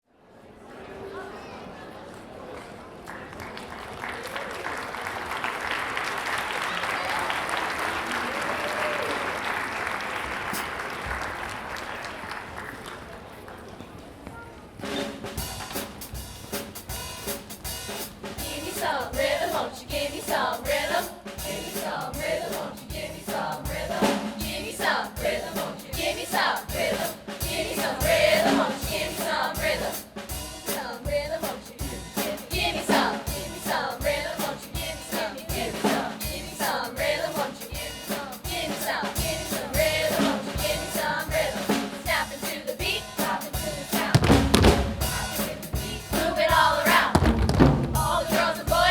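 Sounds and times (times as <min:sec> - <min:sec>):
drum kit beat: 0:14.8 - 0:48.9
choir singing: 0:18.3 - 0:48.9.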